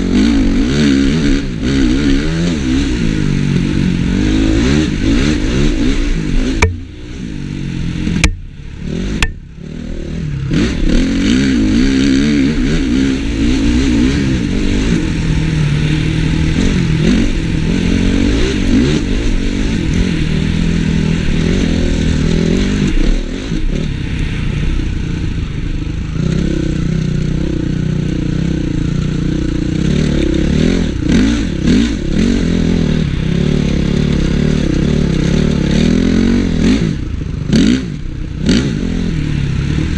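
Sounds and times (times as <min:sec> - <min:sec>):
motocross bike engine revving: 0:00.0 - 0:39.9
sharp knocks: 0:06.6 - 0:07.0, 0:08.2 - 0:08.5.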